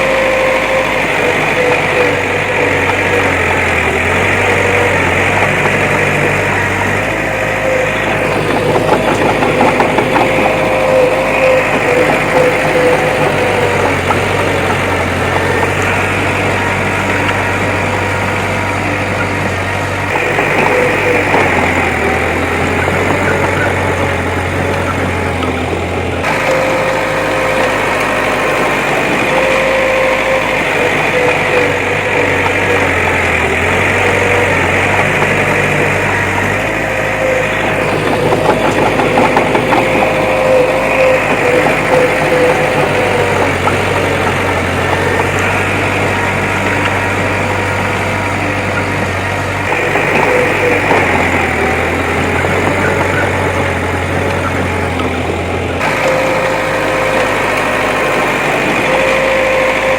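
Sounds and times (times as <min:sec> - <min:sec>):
diesel engine running: 0:00.0 - 0:59.9
rattling and clanking: 0:00.0 - 0:59.9
wavering whine: 0:00.0 - 0:59.9.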